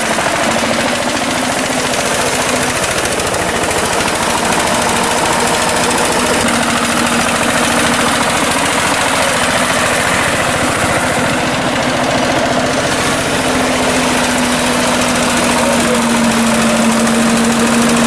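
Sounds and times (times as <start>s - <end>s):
diesel tractor engine chugging: 0.0s - 18.0s.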